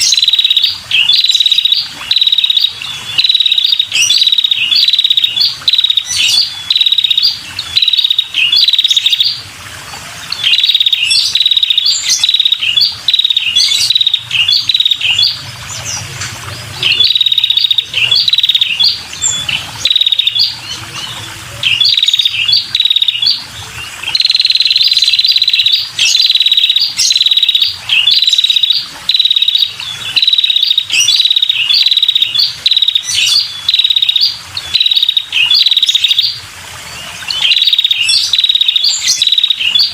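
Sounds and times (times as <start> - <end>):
bird buzzy chattering call: 0.0 - 9.5, 10.2 - 39.9.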